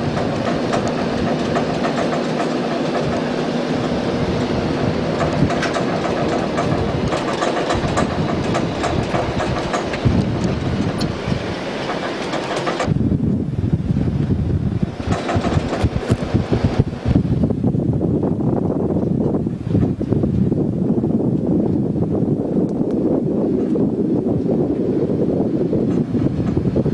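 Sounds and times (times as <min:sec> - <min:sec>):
rattles and clicks: 0:00.0 - 0:13.0, 0:14.8 - 0:16.9
vehicle rumbling: 0:00.0 - 0:26.9.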